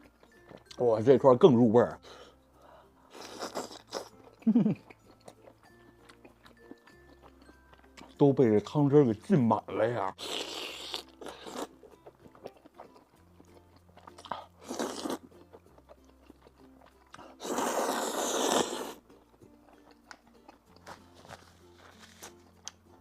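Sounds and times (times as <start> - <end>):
crunching and chewing: 0.0 - 0.8, 3.1 - 8.2, 10.1 - 23.0
quiet background music: 0.0 - 23.0
wet mouth noises: 10.2 - 19.1.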